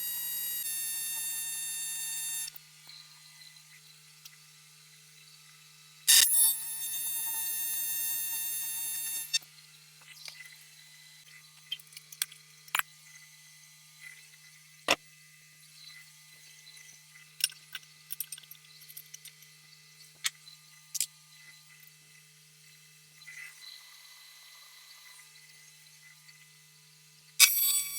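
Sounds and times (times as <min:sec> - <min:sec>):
welding arc buzzing: 0:00.0 - 0:02.6, 0:06.1 - 0:09.4, 0:27.4 - 0:27.9.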